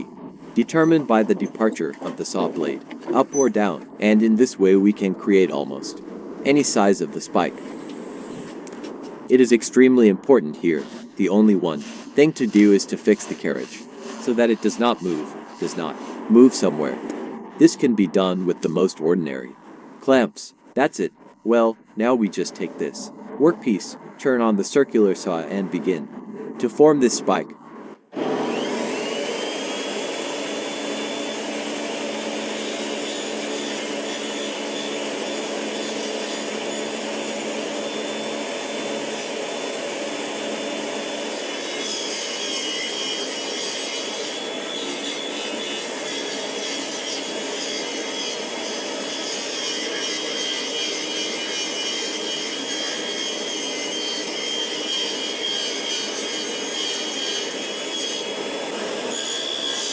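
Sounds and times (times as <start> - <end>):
saw blade cutting wood: 0.0 - 5.6, 10.7 - 17.3, 28.2 - 59.9
circular saw whining: 0.0 - 9.3, 28.1 - 59.9.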